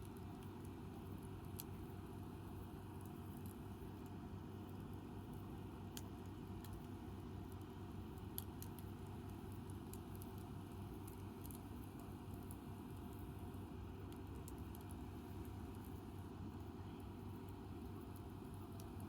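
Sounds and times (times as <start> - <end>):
campfire crackling and popping: 7.5 - 13.2.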